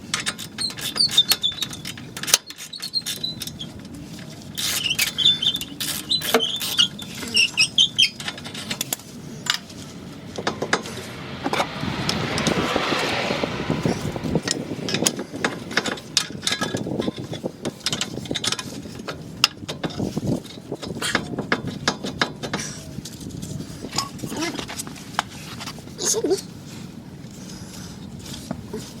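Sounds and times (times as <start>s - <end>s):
metal tools clinking and scraping: 0.0s - 11.6s, 13.8s - 26.7s
short squeak: 0.6s - 3.8s, 4.5s - 8.6s.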